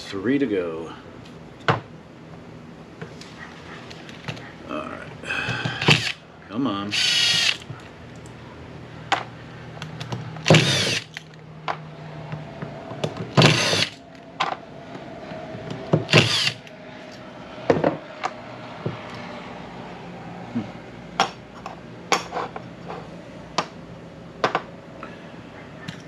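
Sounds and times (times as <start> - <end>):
drill clicks: 5.8 - 6.2, 6.9 - 7.7, 10.4 - 11.2, 13.4 - 14.0, 16.1 - 16.7
power drill whining: 5.8 - 6.2, 6.9 - 7.7, 10.4 - 11.2, 13.4 - 14.0, 16.1 - 16.7.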